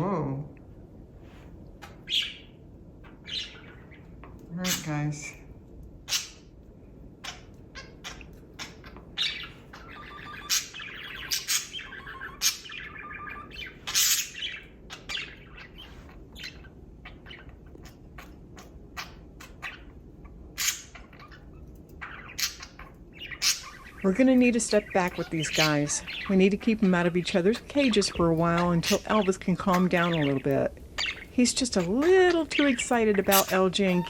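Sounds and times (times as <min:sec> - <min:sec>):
budgerigars chirping: 0:01.8 - 0:05.4, 0:06.0 - 0:06.5, 0:07.2 - 0:34.0
budgerigar warbling chatter: 0:07.2 - 0:19.9, 0:20.6 - 0:34.0.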